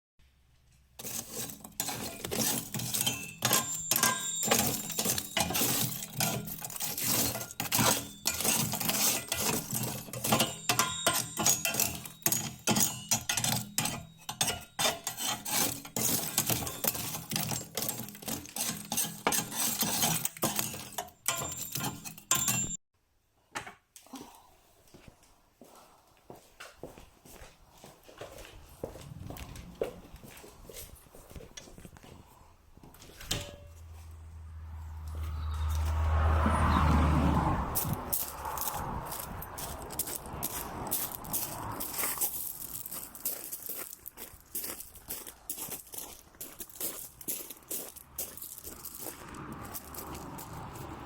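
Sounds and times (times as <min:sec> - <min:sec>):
dishes and cutlery clattering: 0:01.0 - 0:22.8, 0:33.2 - 0:33.8
short ringing tones: 0:02.9 - 0:15.0, 0:21.2 - 0:22.8.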